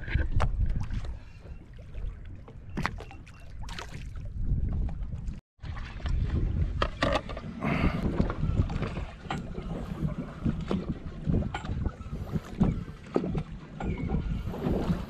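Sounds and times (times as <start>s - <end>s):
water: 0.0s - 15.0s
wind buffeting microphone: 3.6s - 15.0s.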